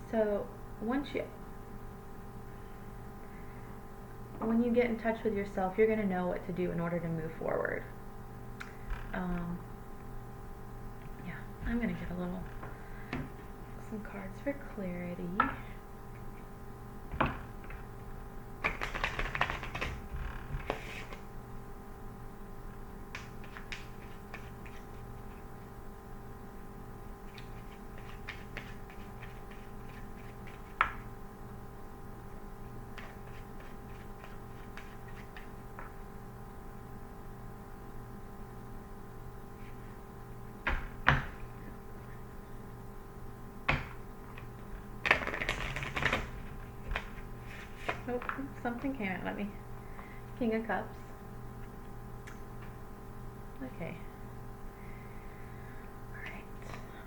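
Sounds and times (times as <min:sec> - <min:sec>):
low electrical hum: 0:00.0 - 0:57.0
cards riffling: 0:18.6 - 0:20.0, 0:45.0 - 0:48.3
cards shuffling: 0:18.6 - 0:20.0, 0:20.6 - 0:21.2, 0:23.2 - 0:25.5, 0:27.3 - 0:31.0, 0:32.9 - 0:35.9, 0:45.0 - 0:48.4
deck tapping and slapping: 0:18.6 - 0:20.0, 0:20.6 - 0:21.2, 0:23.1 - 0:25.4, 0:27.3 - 0:31.0, 0:32.9 - 0:36.0, 0:43.7 - 0:48.4.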